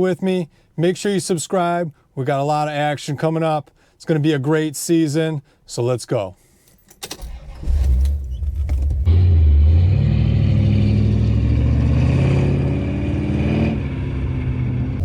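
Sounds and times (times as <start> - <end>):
car engine revving: 7.3 - 15.0.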